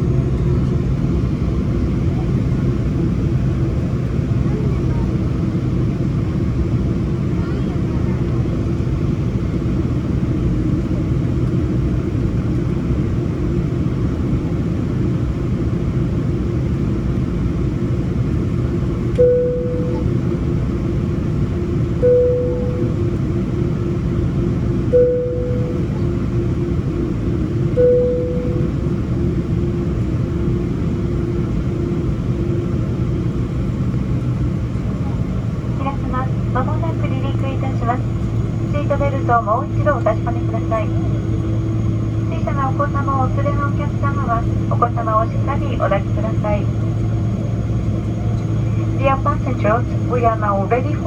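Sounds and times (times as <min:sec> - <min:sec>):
aircraft cabin engine rumble: 0:00.0 - 0:51.0
faint constant hum: 0:19.0 - 0:33.0, 0:33.6 - 0:51.0
clear steady tone: 0:19.1 - 0:20.5, 0:21.8 - 0:23.4, 0:24.7 - 0:26.6, 0:27.6 - 0:29.2
faint wavering hum: 0:19.2 - 0:20.9, 0:21.8 - 0:24.0, 0:24.7 - 0:26.9, 0:27.5 - 0:29.6.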